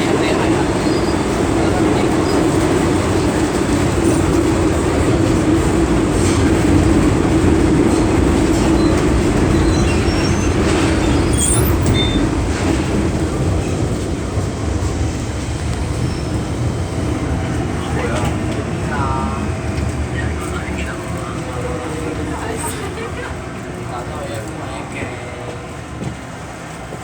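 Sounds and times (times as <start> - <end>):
metro train rumble and hum: 0.0 - 27.0
high wheel squeak: 0.7 - 2.6, 8.5 - 12.8, 15.8 - 17.0.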